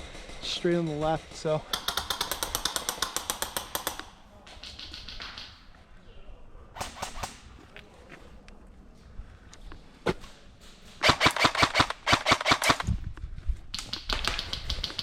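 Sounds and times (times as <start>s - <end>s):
airsoft guns firing: 0.0s - 5.7s, 6.8s - 7.6s, 11.0s - 12.9s, 13.7s - 15.0s.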